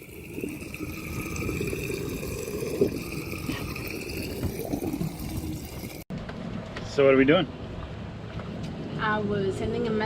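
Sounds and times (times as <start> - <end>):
water running: 0.0 - 6.1.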